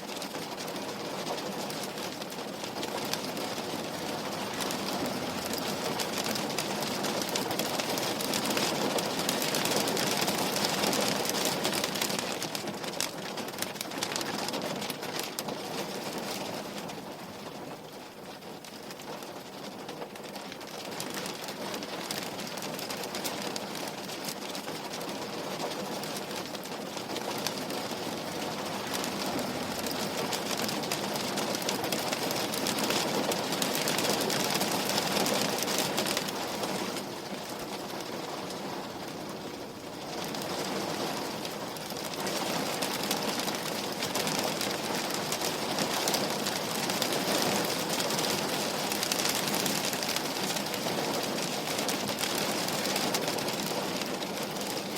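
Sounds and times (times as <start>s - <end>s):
rain on a window: 0.0s - 54.9s.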